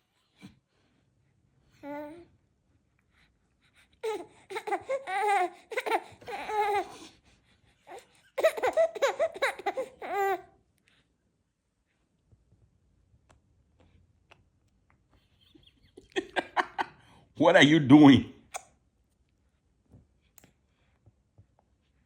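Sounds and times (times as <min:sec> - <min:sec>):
baby laughing and babbling: 0:04.0 - 0:07.0, 0:07.9 - 0:10.5.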